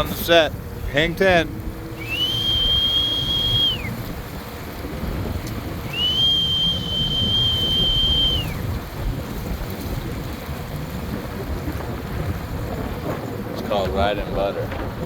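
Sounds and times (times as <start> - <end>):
rush of wind and water: 0.0 - 15.0
high whistle: 2.0 - 4.0, 5.8 - 8.6.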